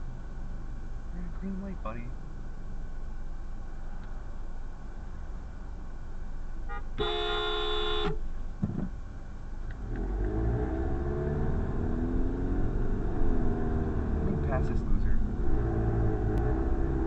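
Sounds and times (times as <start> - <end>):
car engine rumble: 0.0 - 17.0
car horn honking: 6.6 - 8.2.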